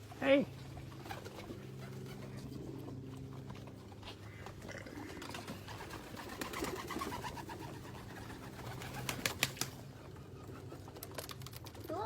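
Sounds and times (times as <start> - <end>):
birds calling in low notes: 0.0 - 11.0.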